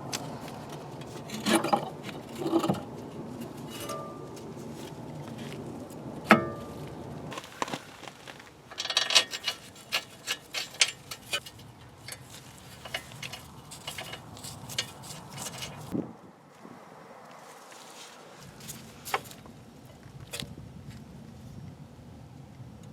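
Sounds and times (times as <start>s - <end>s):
metal tools clanking: 0.7s - 5.6s, 6.3s - 6.9s, 8.7s - 16.0s
light metal clicks and clinks: 8.7s - 15.9s.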